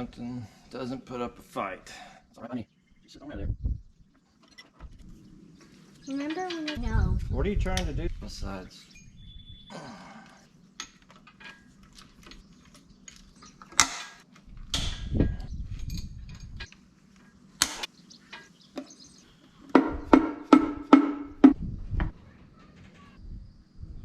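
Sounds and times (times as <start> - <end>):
metal tools knocking and scraping: 4.3 - 5.0, 6.1 - 6.8, 10.8 - 16.8, 17.6 - 18.9.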